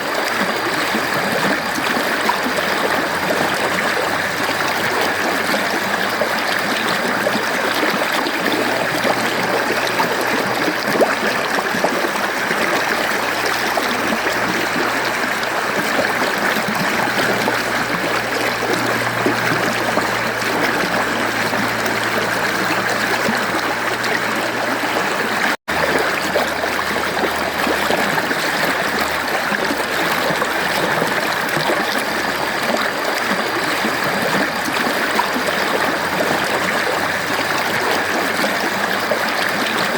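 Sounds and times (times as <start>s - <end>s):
mountain stream flowing: 0.0s - 39.9s.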